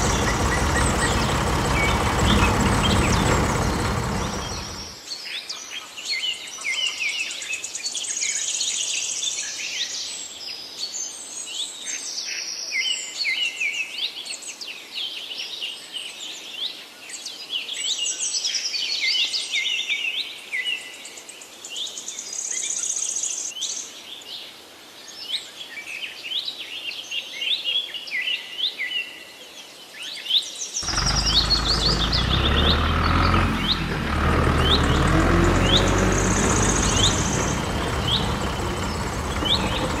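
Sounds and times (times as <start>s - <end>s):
small birds chirping: 0.0s - 5.0s, 30.8s - 40.0s.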